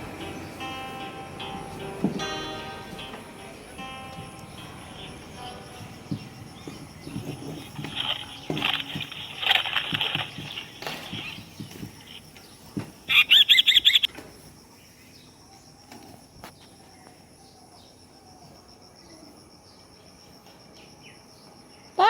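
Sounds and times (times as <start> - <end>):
bird chicks cheeping: 4.2 - 18.1.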